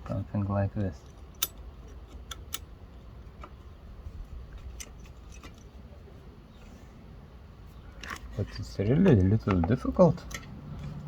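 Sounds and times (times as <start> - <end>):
small metal parts clicking: 1.0 - 2.7.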